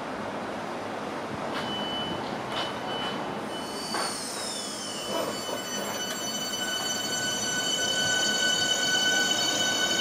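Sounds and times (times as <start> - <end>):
electric train whine: 2.6 - 10.0.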